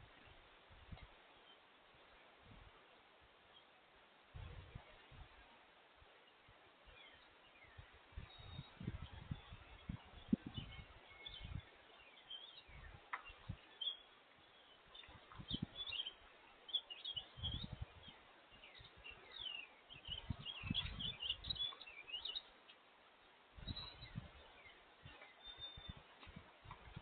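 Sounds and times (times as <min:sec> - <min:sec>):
small songbirds chirping: 0:00.0 - 0:02.6, 0:03.4 - 0:05.6, 0:06.2 - 0:27.0.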